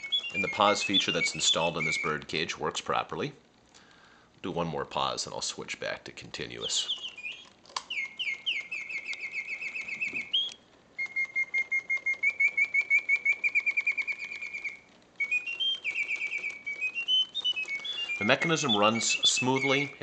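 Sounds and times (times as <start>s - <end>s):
mechanical birdsong trills: 0.0s - 3.0s, 5.0s - 20.0s.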